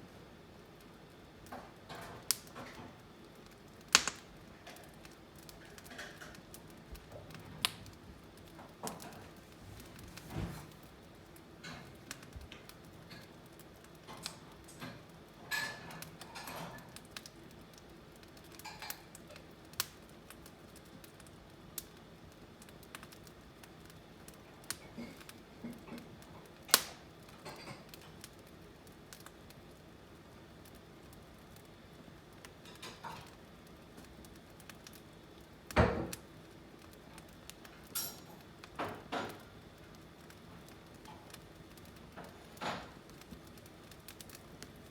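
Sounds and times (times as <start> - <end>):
firewood crackling and popping: 0.0 - 44.9.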